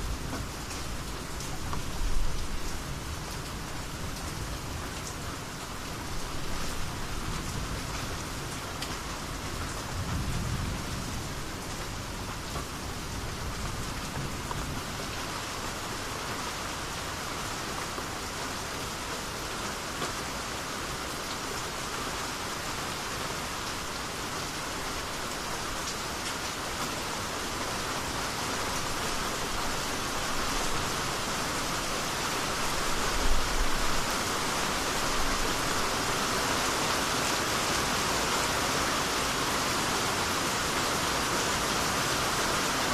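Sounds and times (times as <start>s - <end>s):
rain pattering on surfaces: 0.0s - 42.9s
low rumble of thunder: 9.8s - 12.3s.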